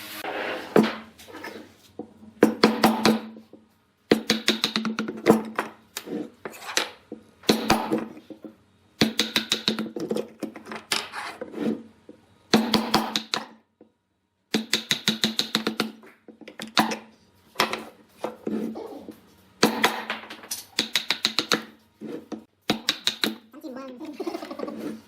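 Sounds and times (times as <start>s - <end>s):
sharp wooden knocks and taps: 19.6s - 21.7s, 22.7s - 23.4s.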